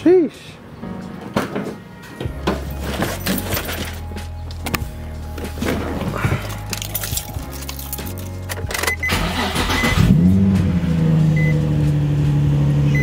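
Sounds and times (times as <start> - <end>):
keys jingling: 2.6 - 4.7, 6.0 - 9.0
car engine starting and idling: 5.3 - 13.0.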